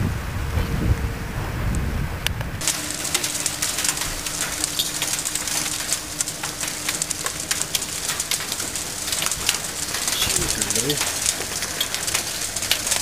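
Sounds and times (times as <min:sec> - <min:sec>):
hailstones pelting hard surfaces: 0:02.6 - 0:13.0.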